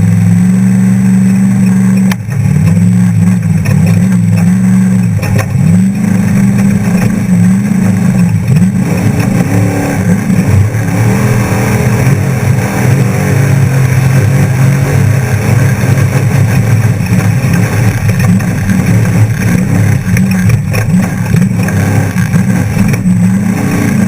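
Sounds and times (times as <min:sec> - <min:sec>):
steady rush of noise: 0:00.0 - 0:24.0
truck engine revving: 0:00.0 - 0:24.0.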